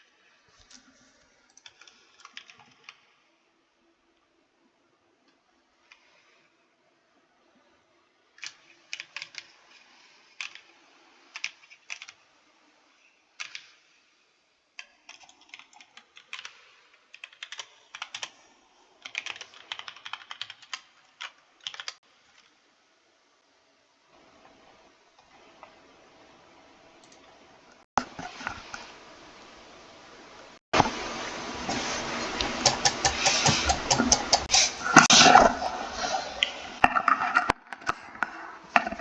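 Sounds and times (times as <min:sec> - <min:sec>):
typing on computer keyboard: 0:01.6 - 0:03.1, 0:08.4 - 0:09.5, 0:10.4 - 0:10.7, 0:11.3 - 0:12.2, 0:13.4 - 0:13.8, 0:14.8 - 0:18.4, 0:19.0 - 0:22.5.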